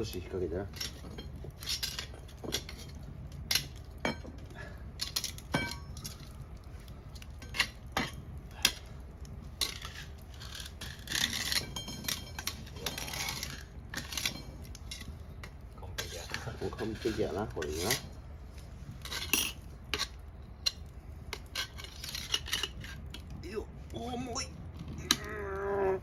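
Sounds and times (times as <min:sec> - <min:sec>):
metal cookware clanking: 0:00.7 - 0:06.4, 0:07.2 - 0:08.9, 0:09.5 - 0:18.1, 0:19.0 - 0:23.3.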